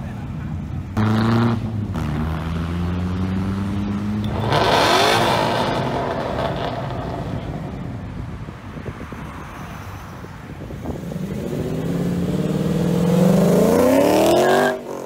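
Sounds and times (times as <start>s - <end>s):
sports car engine revving: 1.0s - 7.7s, 11.0s - 15.0s.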